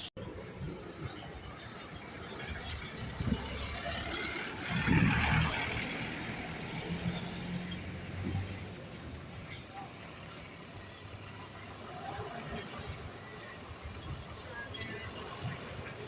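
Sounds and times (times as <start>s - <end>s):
bus engine humming: 0.0s - 16.0s.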